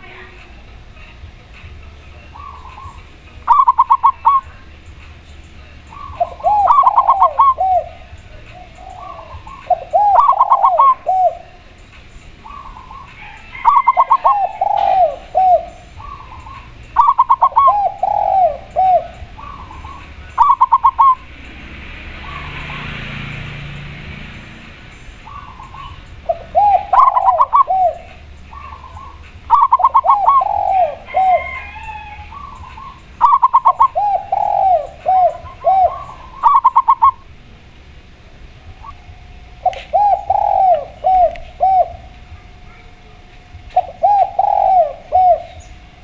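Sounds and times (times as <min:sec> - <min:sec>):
soft rushing noise: 0:00.0 - 0:31.5
doves cooing: 0:00.0 - 0:46.0.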